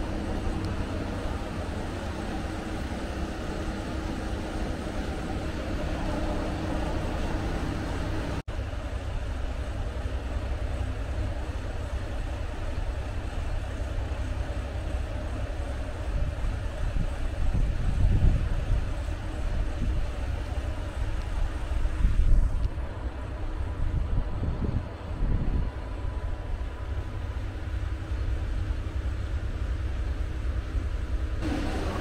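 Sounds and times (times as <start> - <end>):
diesel railcar engine rumble: 0.0 - 32.0
wheels on the track: 0.0 - 32.0
humming engine tone: 31.4 - 32.0.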